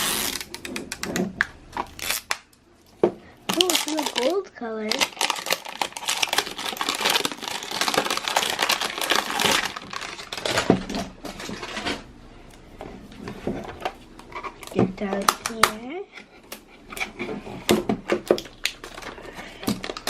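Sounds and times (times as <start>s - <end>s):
plastic wrapping tearing and crinkling: 0.0s - 2.6s, 3.5s - 12.0s, 18.3s - 20.0s.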